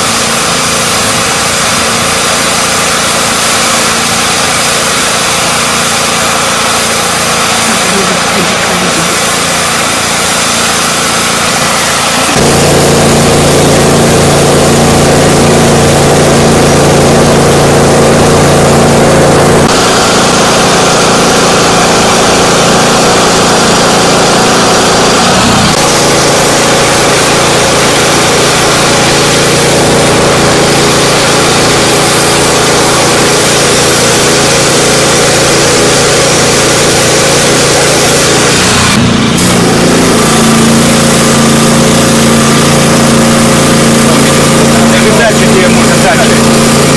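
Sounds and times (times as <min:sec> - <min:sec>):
hiss: 0:00.0 - 0:12.6
spraying unit engine running: 0:00.0 - 0:46.9.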